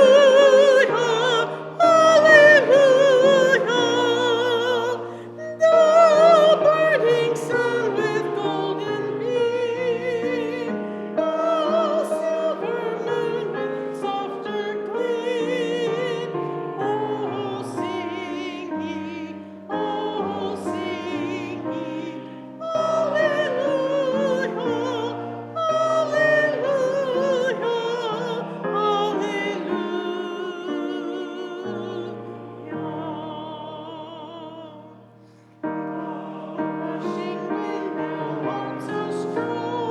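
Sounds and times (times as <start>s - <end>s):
congregation singing a hymn: 0.0s - 39.9s
piano accompaniment: 0.0s - 39.9s.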